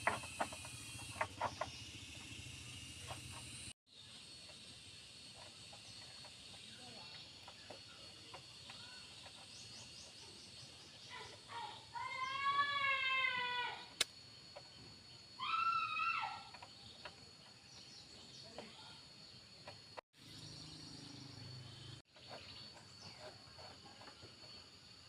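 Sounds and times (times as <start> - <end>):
sharp click: 14.0 - 14.2
animal crying: 15.4 - 16.6.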